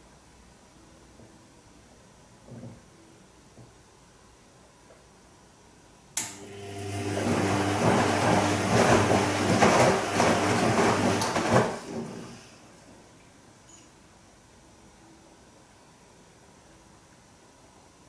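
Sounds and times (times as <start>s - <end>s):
washing machine motor hum: 6.2s - 12.9s
water and laundry sloshing: 6.8s - 12.6s.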